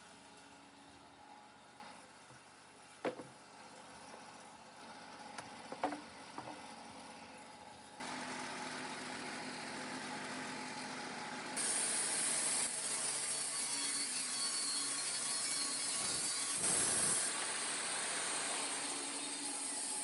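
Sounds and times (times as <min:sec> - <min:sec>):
band sawmill cutting wood: 0:08.0 - 0:20.0
high hiss of saw: 0:11.6 - 0:20.0.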